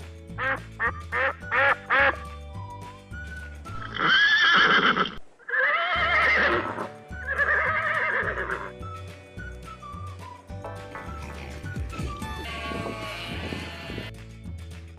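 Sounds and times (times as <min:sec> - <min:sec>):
background music with steady beat: 0:00.0 - 0:04.0, 0:06.0 - 0:14.9
duck quacking: 0:00.4 - 0:02.2
horse whinnying: 0:03.8 - 0:08.8, 0:12.0 - 0:14.1.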